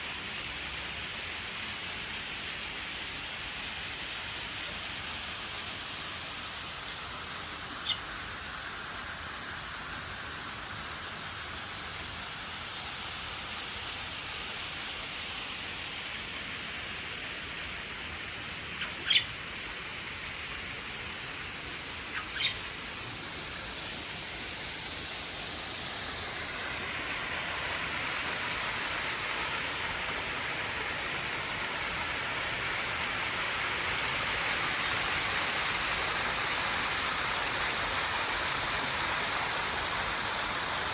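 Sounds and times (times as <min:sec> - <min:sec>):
flowing water rushing: 0:00.0 - 0:40.9
sharp bird calls: 0:07.8 - 0:08.1, 0:18.8 - 0:19.4, 0:22.1 - 0:22.8.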